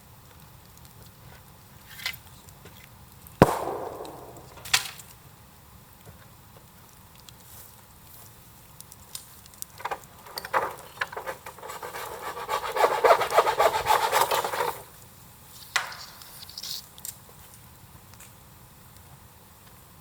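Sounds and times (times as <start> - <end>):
sharp tap: 3.4 - 5.0
rough scraping: 9.9 - 14.9.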